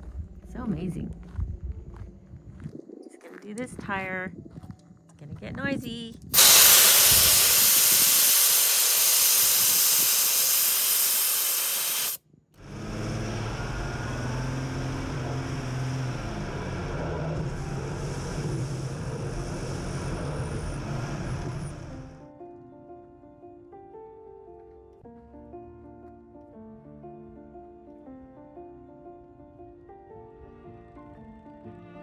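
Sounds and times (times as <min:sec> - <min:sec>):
air hissing out of a tire: 0:06.4 - 0:12.2
low vehicle hum: 0:12.7 - 0:22.2.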